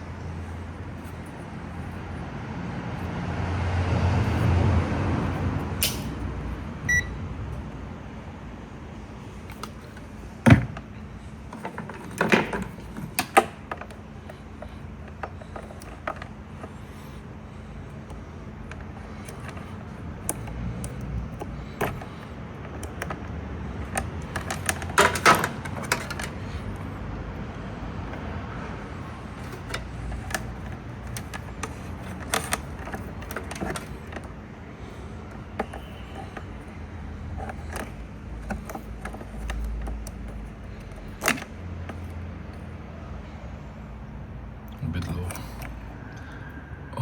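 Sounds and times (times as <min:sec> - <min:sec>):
handling clicks and knocks: 0:09.2 - 0:26.9, 0:29.0 - 0:42.6.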